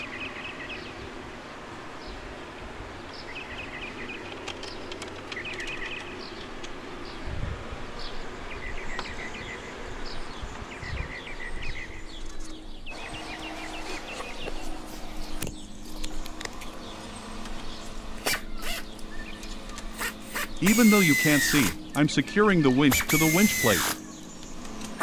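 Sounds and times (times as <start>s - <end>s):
birds chirping: 0.0s - 25.0s
sharp clicks: 4.2s - 6.8s, 22.8s - 25.0s.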